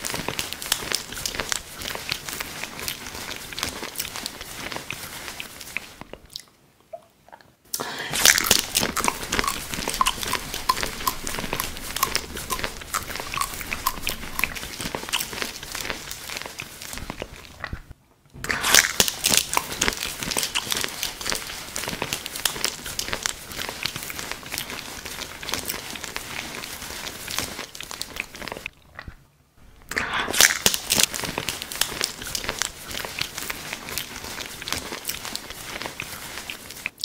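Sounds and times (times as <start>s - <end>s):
crackly crunching chews: 0.0s - 6.6s, 7.8s - 29.2s, 29.8s - 37.0s
crunchy biting: 7.8s - 17.8s, 18.5s - 26.6s, 29.9s - 35.4s.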